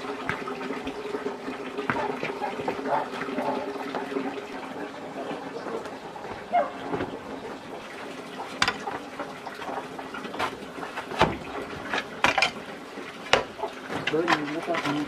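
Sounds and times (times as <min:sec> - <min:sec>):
water sloshing: 0:00.0 - 0:15.0
sharp knocks: 0:10.4 - 0:12.6.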